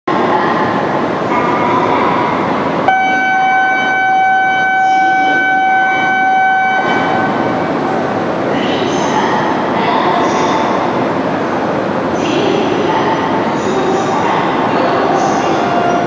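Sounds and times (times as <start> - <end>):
train running noise: 0.1 - 16.0
train horn tone: 2.9 - 7.7.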